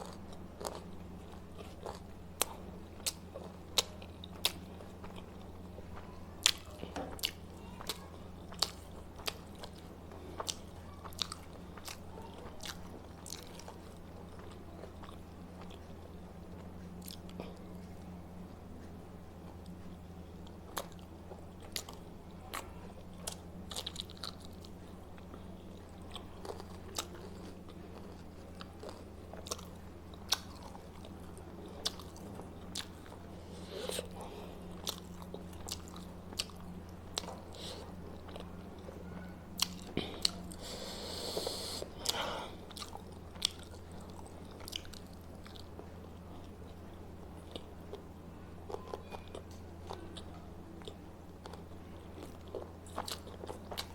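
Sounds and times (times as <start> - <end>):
person chewing food: 0.0 - 18.1, 18.8 - 53.9
steady low hum: 0.0 - 53.9.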